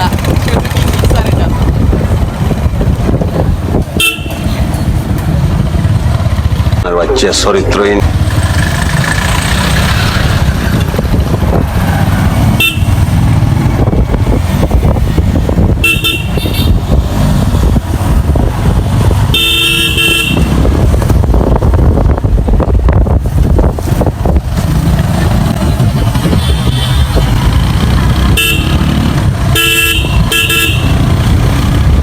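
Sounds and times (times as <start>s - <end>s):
wind on microphone: 0.0s - 6.8s, 8.1s - 32.0s
motorcycle engine rumble: 0.0s - 32.0s
vehicle horn: 4.0s - 4.5s, 12.5s - 13.0s, 15.8s - 16.8s, 19.3s - 20.6s, 26.2s - 27.4s, 28.3s - 28.9s, 29.5s - 31.0s.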